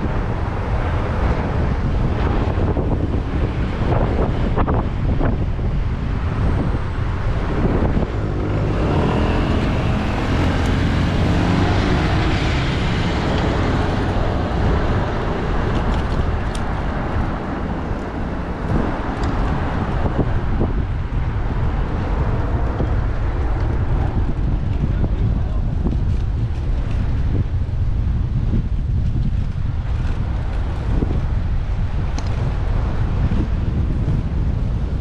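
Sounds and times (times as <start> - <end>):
motor vehicle passing: 0.0 - 25.1
wind rumble on microphone: 0.0 - 35.0.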